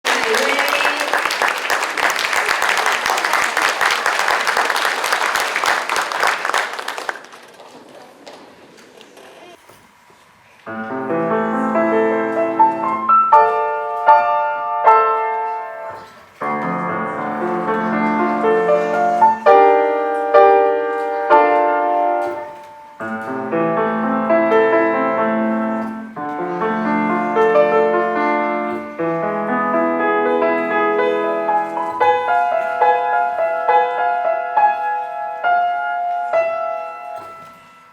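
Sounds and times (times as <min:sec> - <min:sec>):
piano playing chords: 0:10.7 - 0:37.9.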